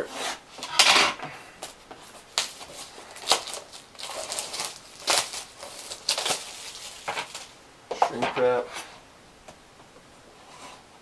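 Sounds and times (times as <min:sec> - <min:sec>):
plastic shrink wrap crinkling: 0:01.6 - 0:08.2.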